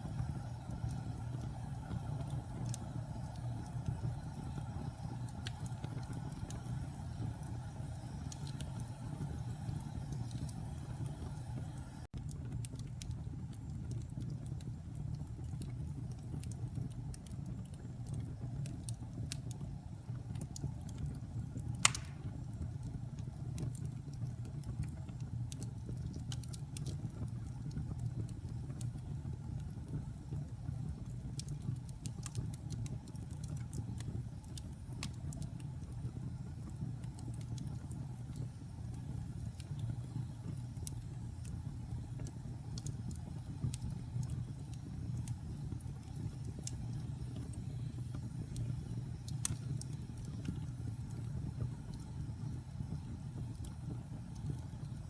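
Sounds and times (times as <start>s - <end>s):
fire crackling: 0.0s - 55.0s
fire low rumble: 0.0s - 55.0s
loud pop of wood fire: 21.8s - 22.7s.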